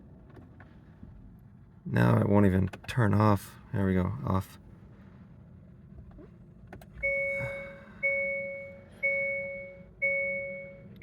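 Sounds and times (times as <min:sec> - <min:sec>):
two-note dashboard warning chime: 0:07.0 - 0:11.0.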